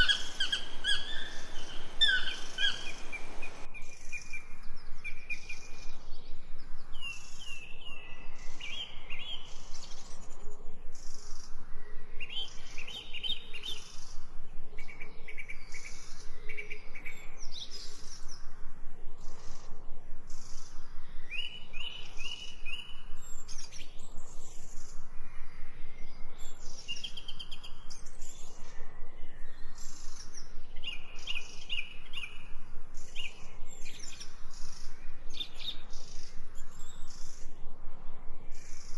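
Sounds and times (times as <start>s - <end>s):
birds chirping: 0.0s - 3.7s
natural ambience: 0.0s - 38.9s.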